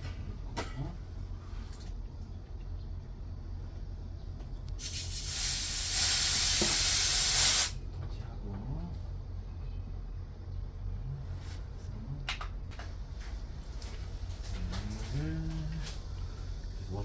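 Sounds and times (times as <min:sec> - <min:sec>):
low steady hum: 0:00.0 - 0:17.0
refrigerant gas hissing: 0:04.7 - 0:07.8.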